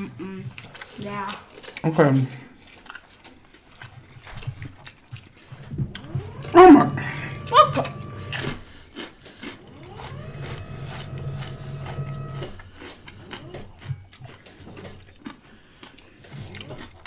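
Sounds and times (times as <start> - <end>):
chewing sandwich: 0.0 - 6.2, 8.3 - 10.4, 11.0 - 17.0
held hum: 5.5 - 8.8, 9.4 - 14.0.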